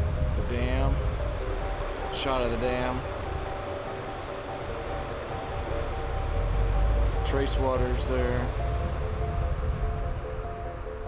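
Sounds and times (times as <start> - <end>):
slow held-note music: 0.0 - 11.0
steady rushing noise: 0.0 - 11.0.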